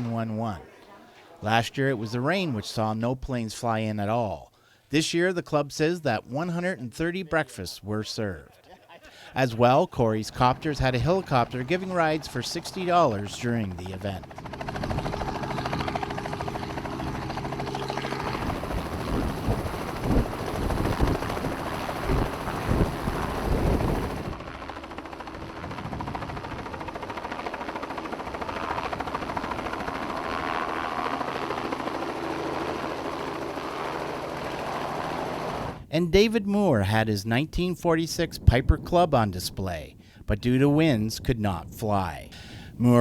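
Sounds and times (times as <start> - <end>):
helicopter engine and rotor: 10.3 - 35.9
wind on microphone: 18.2 - 24.4.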